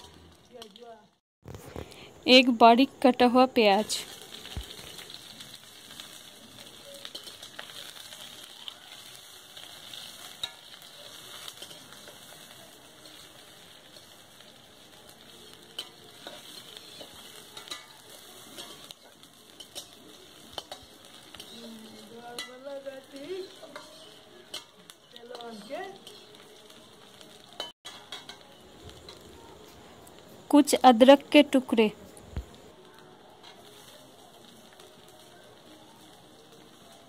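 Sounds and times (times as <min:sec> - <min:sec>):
vegetables sizzling in a wok: 0:00.0 - 0:37.0
metal ladle scraping a pan: 0:19.6 - 0:26.4.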